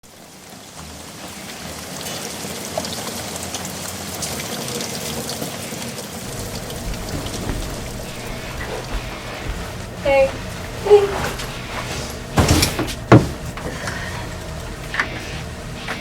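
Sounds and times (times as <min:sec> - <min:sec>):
rain drops ticking: 0:00.1 - 0:12.4.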